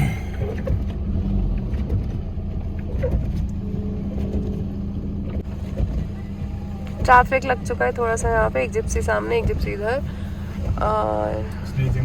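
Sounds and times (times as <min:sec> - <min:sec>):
engine and road drone: 0:00.0 - 0:12.0.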